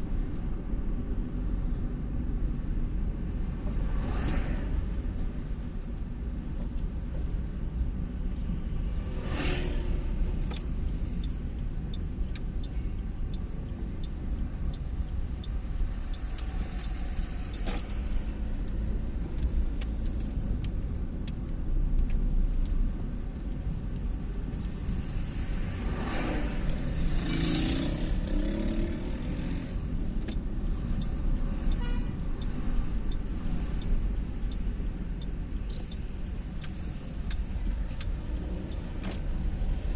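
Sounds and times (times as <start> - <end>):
car road and engine rumble: 0.0 - 39.9
light evenly spaced ticks: 10.4 - 39.9.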